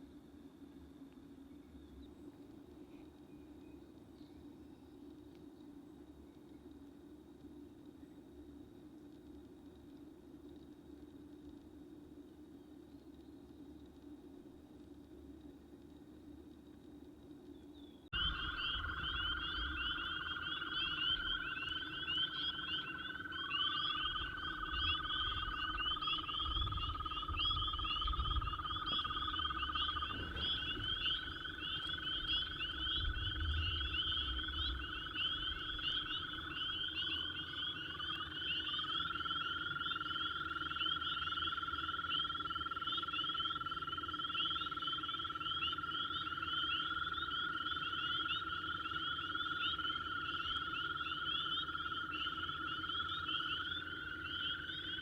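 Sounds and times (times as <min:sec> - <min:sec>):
frogs low trills: 0:18.1 - 0:55.0
frogs high chatter: 0:18.2 - 0:55.0.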